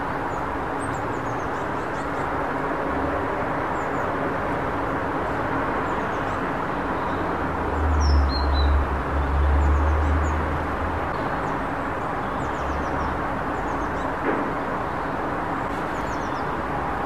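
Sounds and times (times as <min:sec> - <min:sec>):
outdoor background hum: 0:00.0 - 0:17.0
small birds chirping: 0:05.8 - 0:10.5, 0:11.1 - 0:16.6.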